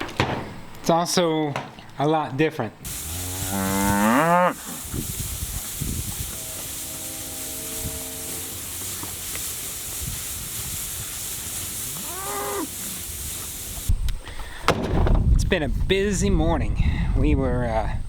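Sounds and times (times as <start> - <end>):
wind hiss: 2.8 - 17.4
cattle mooing: 2.9 - 4.9, 6.3 - 9.2, 12.0 - 12.8.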